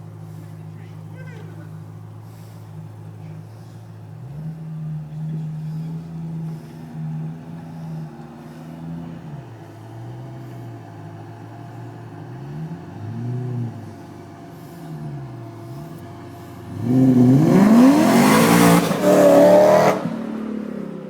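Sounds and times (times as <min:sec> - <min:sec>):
car engine idling: 0:00.0 - 0:21.0
car engine revving: 0:00.0 - 0:21.0.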